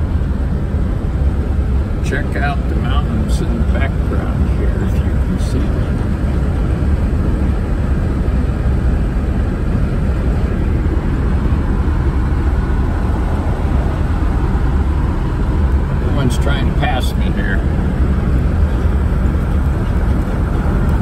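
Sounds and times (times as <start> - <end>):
road noise: 0.0 - 21.0
vehicle engine rumble: 0.0 - 21.0.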